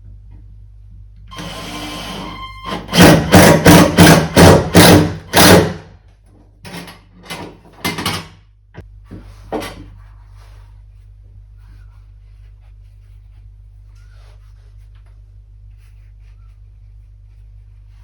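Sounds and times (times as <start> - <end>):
sharp knocks: 2.9 - 5.8.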